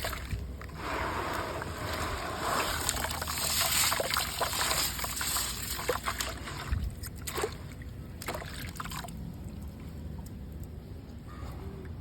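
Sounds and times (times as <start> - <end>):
small splashes: 1.3 - 9.9.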